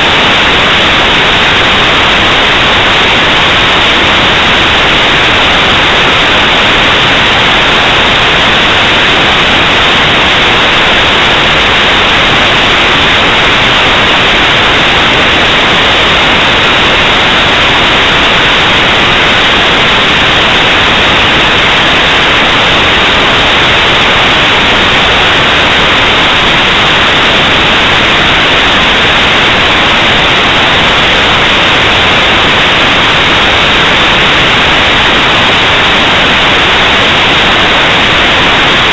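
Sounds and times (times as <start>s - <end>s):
static hiss: 0.0s - 38.9s.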